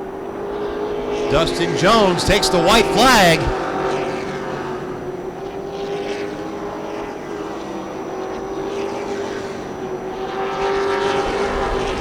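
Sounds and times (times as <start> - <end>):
race truck engines droning: 0.7 - 5.6.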